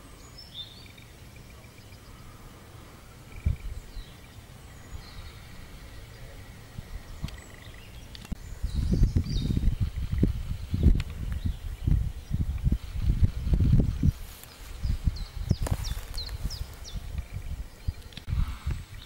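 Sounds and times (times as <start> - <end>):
faint bird calls: 0.0 - 13.0
low microphone rumble: 0.0 - 19.0
sharp clicks: 7.2 - 8.4.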